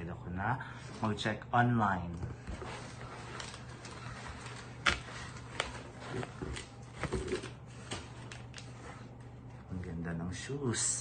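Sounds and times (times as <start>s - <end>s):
rustling: 2.3s - 9.3s.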